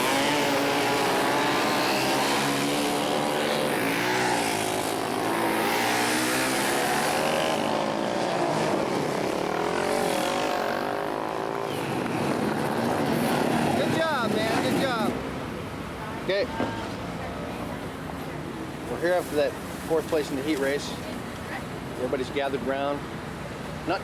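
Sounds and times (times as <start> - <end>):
motorcycle engines revving: 0.0 - 15.5.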